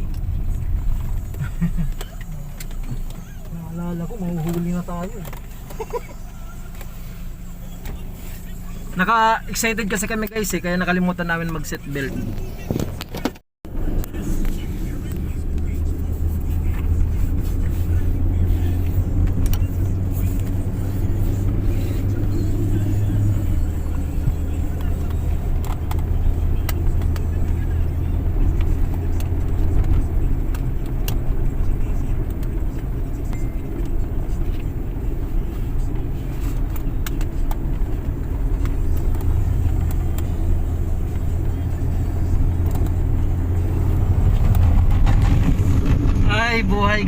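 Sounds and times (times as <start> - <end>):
car engine and tyres rumbling: 0.0 - 47.0
deep hum: 13.6 - 47.0.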